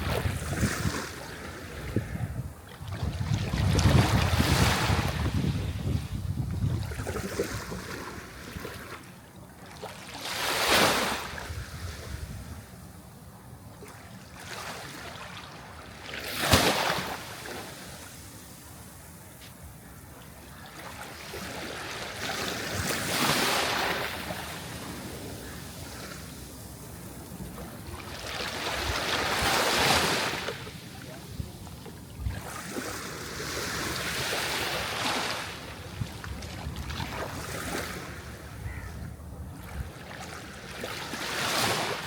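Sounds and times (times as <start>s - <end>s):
sea waves surging: 20.4s - 31.8s.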